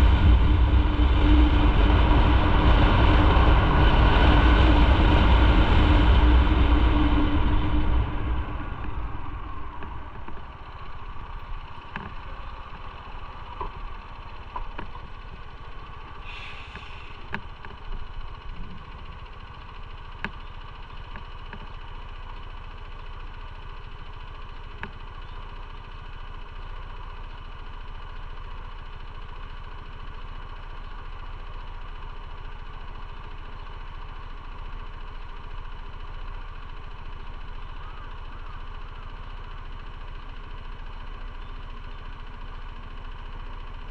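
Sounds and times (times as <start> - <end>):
motorcycle engine idling: 0.0 - 43.9
short hiss: 16.2 - 17.3.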